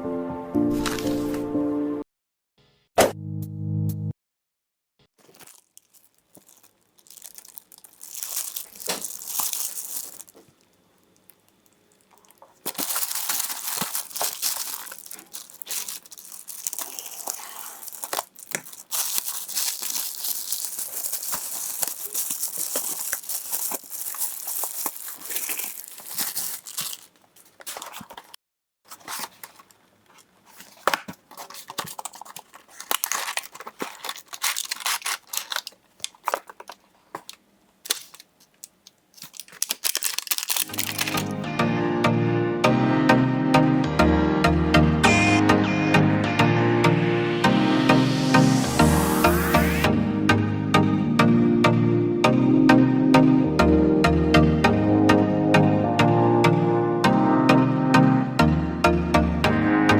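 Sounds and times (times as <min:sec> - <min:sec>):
packaging crinkling and tearing: 0:05.2 - 0:41.4.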